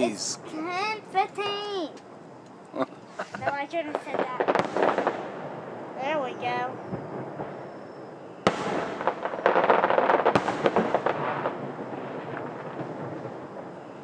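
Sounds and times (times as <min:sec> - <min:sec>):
firework bangs: 0:03.3 - 0:14.0
crackling firework pops: 0:03.9 - 0:05.8, 0:06.8 - 0:14.0.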